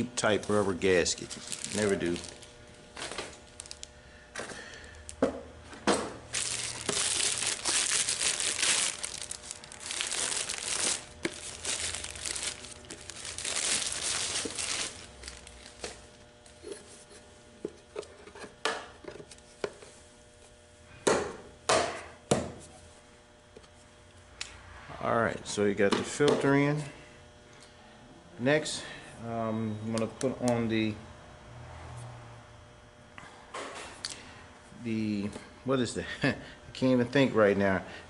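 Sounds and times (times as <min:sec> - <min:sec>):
plastic crinkling: 0:00.4 - 0:03.9, 0:06.3 - 0:16.2.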